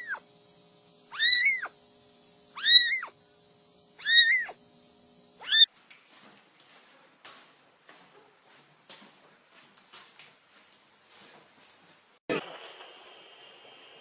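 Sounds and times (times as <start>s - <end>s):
cat meowing: 1.1s - 1.7s, 2.6s - 3.1s, 4.0s - 4.6s, 5.4s - 5.7s.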